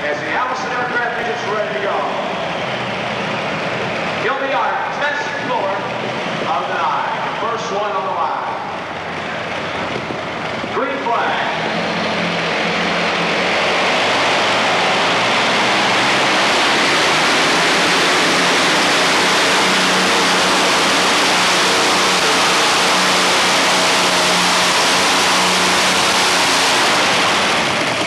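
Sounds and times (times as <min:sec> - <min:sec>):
tractor engine roaring: 0:00.0 - 0:28.0.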